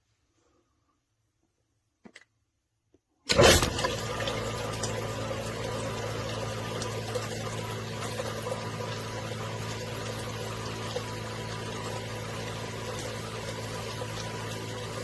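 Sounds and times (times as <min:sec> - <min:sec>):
pump humming: 0:03.3 - 0:15.0
water pouring and splashing: 0:03.3 - 0:15.0.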